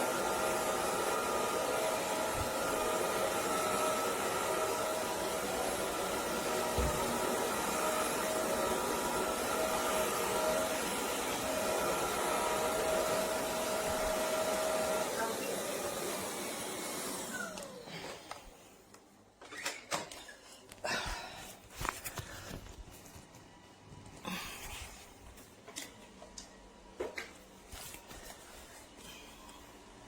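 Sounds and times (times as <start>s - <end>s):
floor vacuum running: 0.0s - 18.8s.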